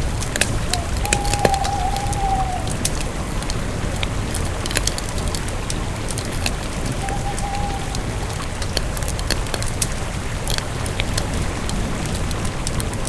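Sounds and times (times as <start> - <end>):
campfire crackling and popping: 0.0 - 13.0
campfire low rumble: 0.0 - 13.0
thin whistling tone: 0.7 - 2.8, 6.9 - 8.4.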